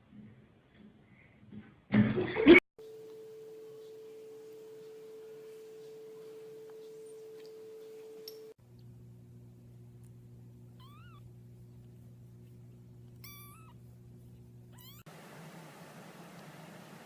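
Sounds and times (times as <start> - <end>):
steady low hum: 2.8 - 17.0
cat meowing: 10.8 - 11.2, 13.2 - 13.8, 14.7 - 15.1.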